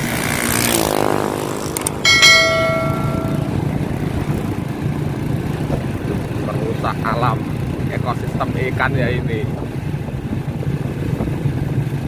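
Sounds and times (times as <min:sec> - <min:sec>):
metallic clang: 0:02.1 - 0:04.0.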